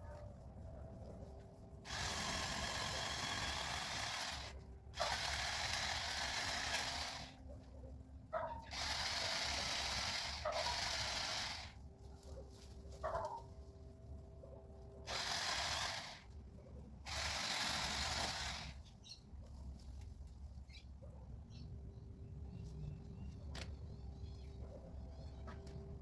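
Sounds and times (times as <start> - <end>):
pole saw cutting through limb: 1.9 - 7.4, 8.7 - 11.8, 15.1 - 16.3, 17.1 - 18.8.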